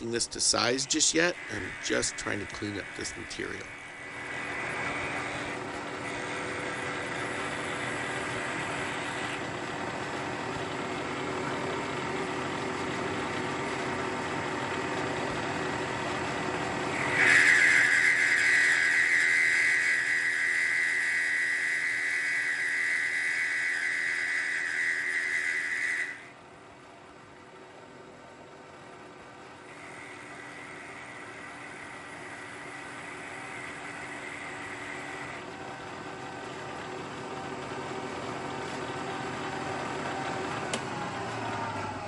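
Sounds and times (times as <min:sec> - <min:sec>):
milling machine motor humming: 0:00.0 - 0:26.3, 0:29.6 - 0:42.0
end mill cutting metal whine: 0:00.0 - 0:26.4, 0:29.6 - 0:42.0.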